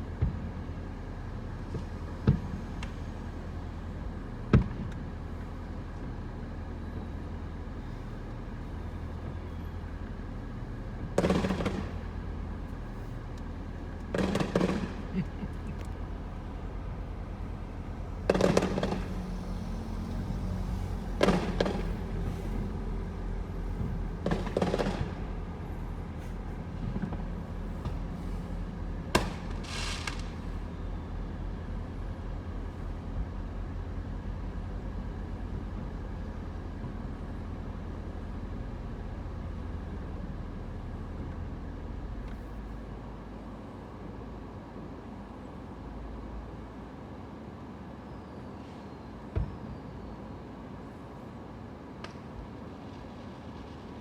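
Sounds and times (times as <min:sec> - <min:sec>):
low rumble: 0:06.9 - 0:36.9
fireworks booming: 0:11.1 - 0:13.1, 0:13.8 - 0:30.7
fireworks crackle: 0:14.1 - 0:15.7, 0:18.2 - 0:19.4, 0:29.2 - 0:30.6.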